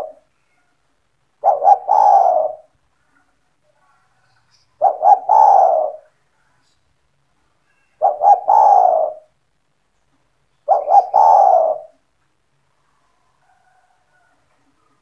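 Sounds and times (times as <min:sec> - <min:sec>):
dove cooing: 0:00.0 - 0:00.3, 0:01.4 - 0:02.7, 0:04.8 - 0:06.1, 0:08.0 - 0:09.4, 0:10.6 - 0:12.1.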